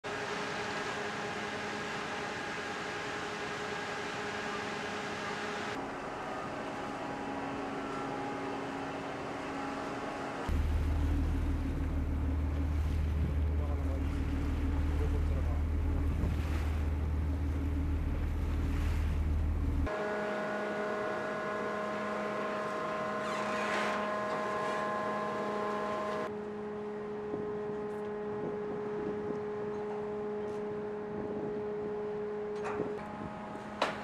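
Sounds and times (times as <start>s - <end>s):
machinery hum: 0.1s - 34.0s
wind buffeting microphone: 10.7s - 19.9s, 27.4s - 29.7s, 30.8s - 33.7s.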